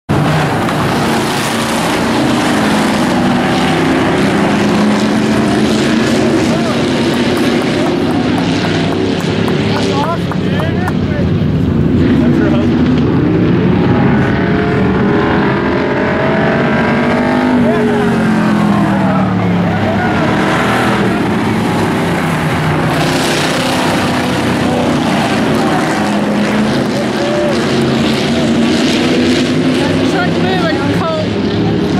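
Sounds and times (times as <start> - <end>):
race truck engines droning: 0.1 - 31.9
steady rush of noise: 0.1 - 31.9.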